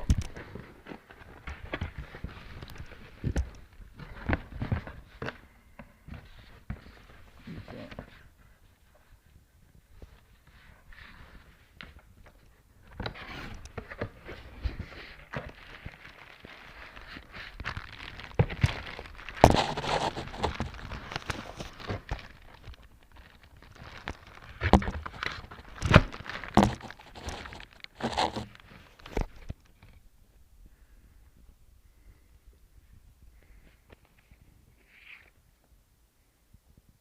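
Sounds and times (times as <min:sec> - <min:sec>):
paper rustling and crinkling: 0:09.9 - 0:30.0.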